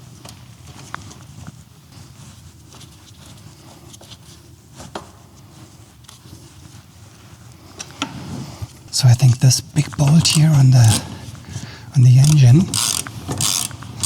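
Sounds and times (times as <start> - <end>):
low room hum: 8.9 - 14.0.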